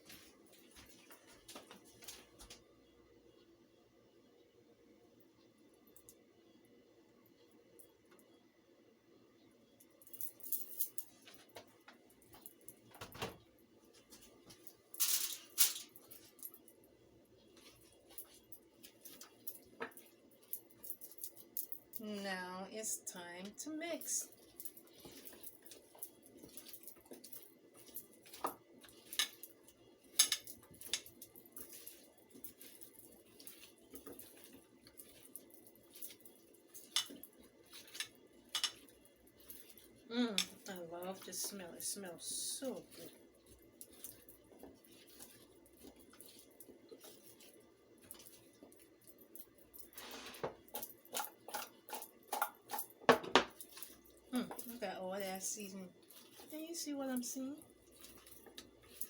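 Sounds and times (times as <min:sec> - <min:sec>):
food being mixed in a dish: 0:16.7 - 0:21.6, 0:22.9 - 0:59.0
soft squishing of raw chicken: 0:42.7 - 0:49.6, 0:55.9 - 0:56.8.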